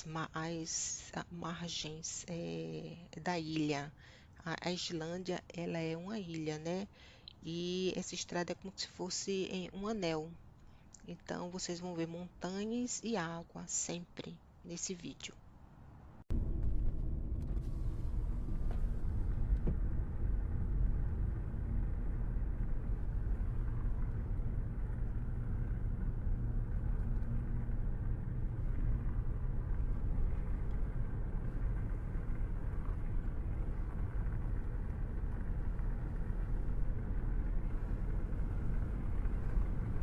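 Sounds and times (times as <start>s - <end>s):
car engine rumble from inside cabin: 16.3s - 40.0s
tyre noise on road: 16.3s - 40.0s.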